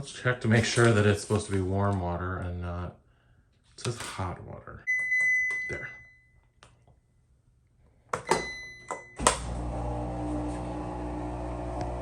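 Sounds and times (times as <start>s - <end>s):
washing machine humming: 9.2s - 12.0s.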